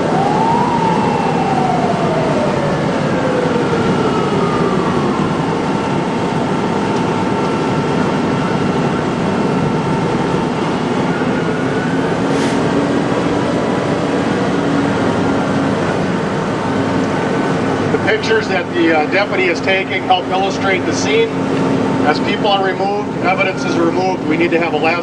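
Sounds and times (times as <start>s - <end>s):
emergency siren winding down: 0.0s - 25.0s
heavy vehicle engines running: 0.0s - 25.0s.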